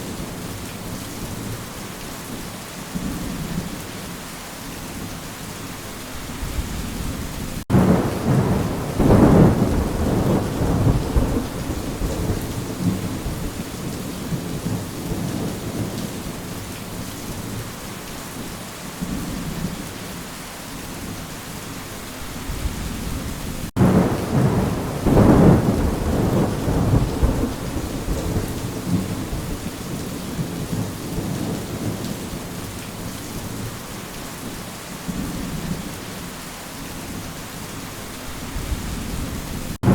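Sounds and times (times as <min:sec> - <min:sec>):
steady rain: 0:00.0 - 0:39.9
thunder rolling: 0:06.5 - 0:13.6, 0:22.5 - 0:29.7, 0:38.6 - 0:39.9.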